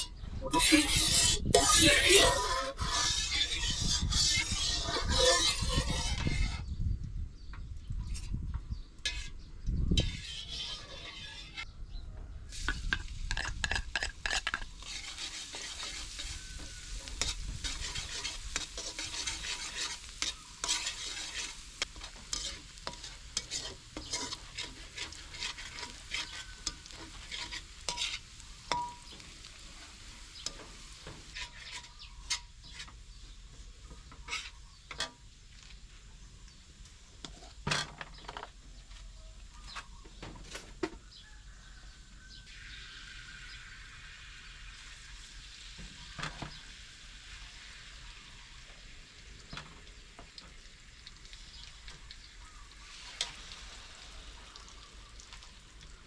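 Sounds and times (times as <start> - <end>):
food sizzling in hot oil: 0.0 - 6.7, 10.0 - 11.6, 13.4 - 37.6, 42.4 - 56.0
utensil scraping a pan: 0.0 - 6.8, 9.0 - 9.3, 10.0 - 11.6, 13.3 - 29.2, 30.4 - 33.0, 34.1 - 35.1.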